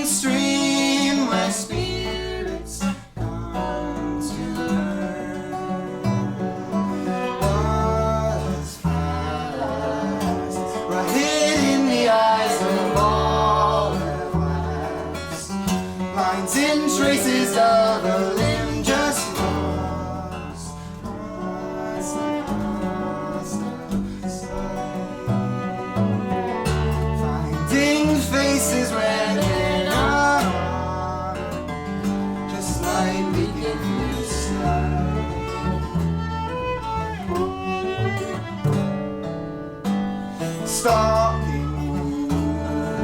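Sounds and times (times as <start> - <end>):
viola sliding melody: 0.0 - 39.2
acoustic guitar: 0.0 - 43.0
bass holding low notes: 0.0 - 43.0.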